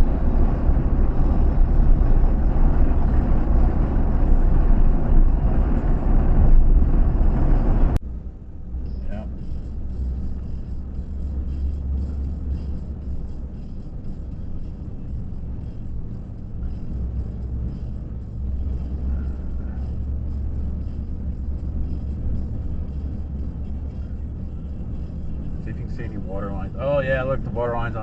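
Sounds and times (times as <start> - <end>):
car driving rumble: 0.0 - 28.0.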